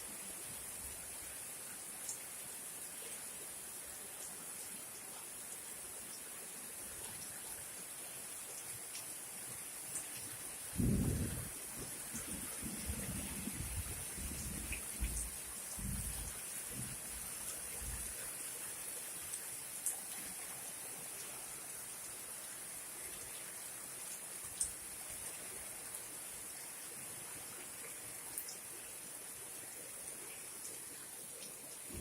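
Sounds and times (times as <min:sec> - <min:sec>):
heavy rain falling: 0:10.0 - 0:19.0, 0:31.4 - 0:32.0
wind gusts rumbling: 0:10.8 - 0:17.0.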